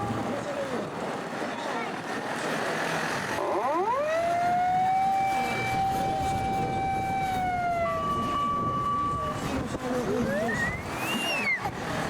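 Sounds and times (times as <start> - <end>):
fire engine siren wailing: 3.3 - 11.9.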